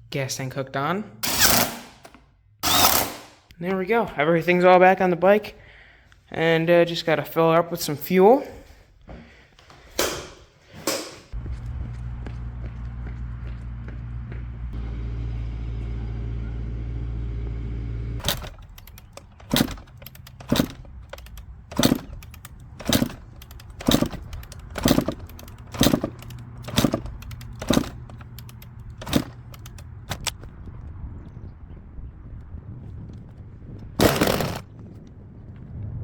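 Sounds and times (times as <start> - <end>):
steady low hum: 11.3 - 30.4
dirt bike kick-start clunks: 18.2 - 30.4, 34.0 - 34.7.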